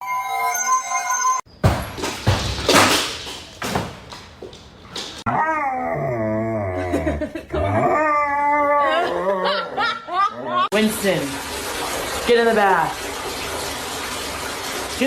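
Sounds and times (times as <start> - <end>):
dog howling moans: 5.3 - 10.7.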